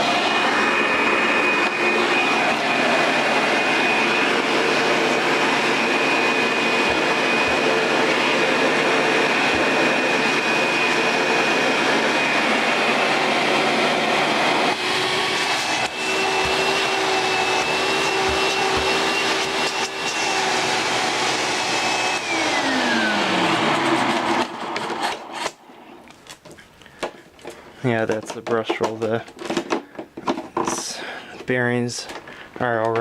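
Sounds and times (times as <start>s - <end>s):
vacuum cleaner running: 0.0s - 26.2s.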